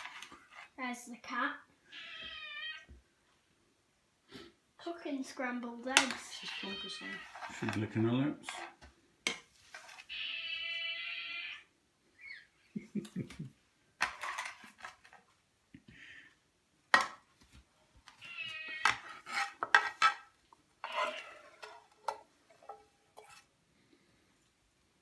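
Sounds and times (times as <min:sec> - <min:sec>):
metal utensil scraping frying pan: 0:18.8 - 0:23.5.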